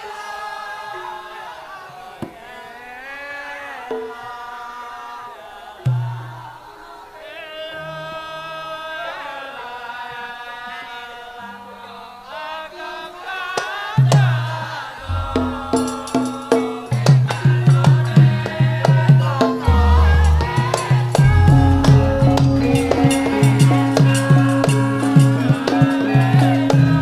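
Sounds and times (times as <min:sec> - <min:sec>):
person singing wavering vocal line: 0:11.4 - 0:27.0
hand drums beating: 0:14.0 - 0:27.0
deep gong strokes: 0:15.0 - 0:16.2
gamelan music: 0:15.0 - 0:17.0, 0:19.6 - 0:27.0
held pitched tones: 0:15.0 - 0:17.1, 0:19.6 - 0:27.0.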